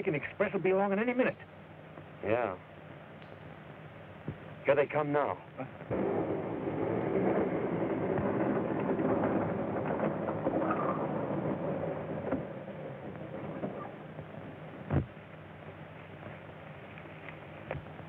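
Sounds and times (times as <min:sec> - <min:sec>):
loud thump: 0:05.9 - 0:13.8, 0:14.8 - 0:15.2
train wheels rumbling on rails: 0:05.9 - 0:15.1.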